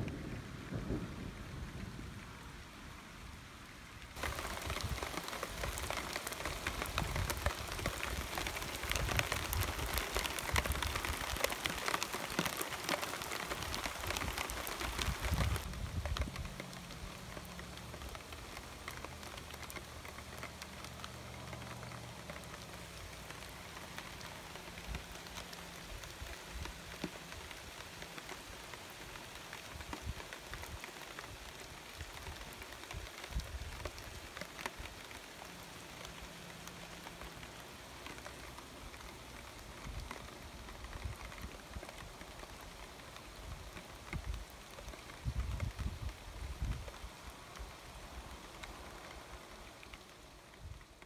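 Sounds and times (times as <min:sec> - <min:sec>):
rain falling on leaves: 0:00.0 - 0:51.0.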